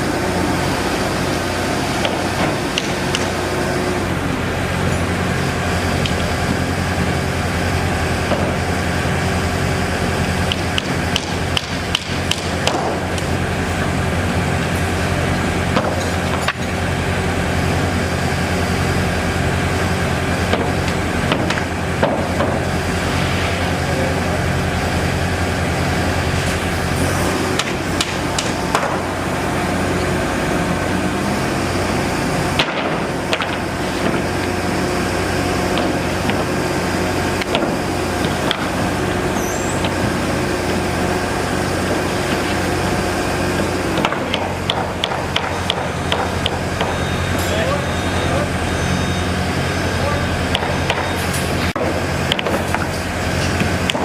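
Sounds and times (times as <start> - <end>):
large engine running: 0.0 - 54.0
sharp knocks and clanks: 8.3 - 8.6, 10.5 - 13.3, 15.7 - 16.8, 20.5 - 22.7, 27.5 - 29.1, 32.5 - 34.3, 43.9 - 47.5, 50.5 - 54.0.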